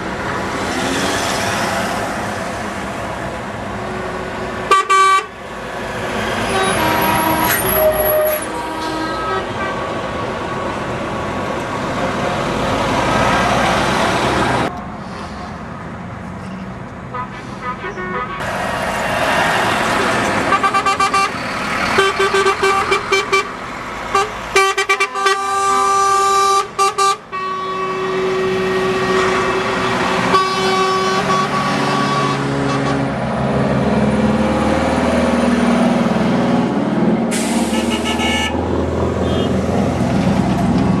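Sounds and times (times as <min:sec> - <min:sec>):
truck engines running: 0:00.0 - 0:41.0
truck horns honking: 0:03.8 - 0:05.4, 0:06.4 - 0:10.3, 0:17.1 - 0:18.6, 0:19.9 - 0:33.4, 0:37.3 - 0:39.8.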